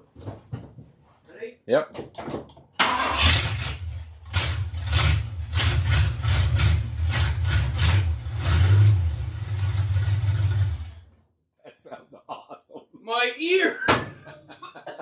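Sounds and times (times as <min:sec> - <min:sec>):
truck engine starting and running: 0:02.8 - 0:11.1.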